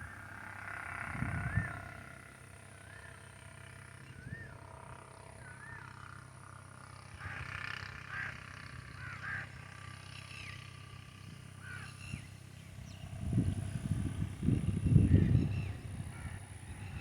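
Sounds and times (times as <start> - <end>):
loud low rough animal call: 0.0 - 6.2.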